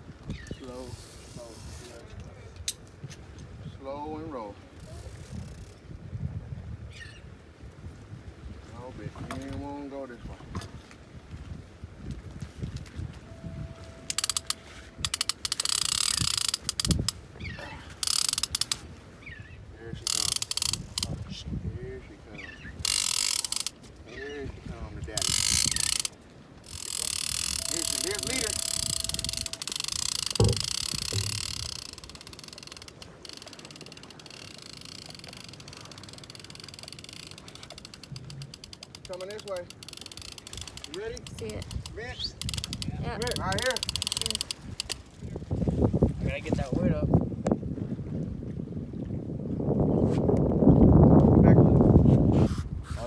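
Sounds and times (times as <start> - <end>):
fishing reel ratcheting clicks: 14.1 - 17.2, 18.0 - 18.8, 20.1 - 21.2, 22.8 - 23.8, 25.2 - 45.1
sharp knock: 30.4 - 31.8.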